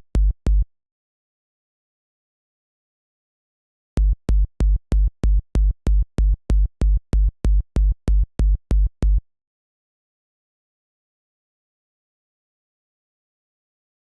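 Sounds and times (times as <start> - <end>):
electronic kick drum hits: 4.0 - 9.2.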